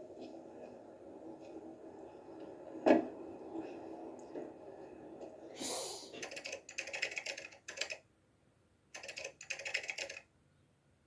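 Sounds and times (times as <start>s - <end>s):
rapid typing on keyboard: 6.2s - 8.1s, 8.9s - 10.3s.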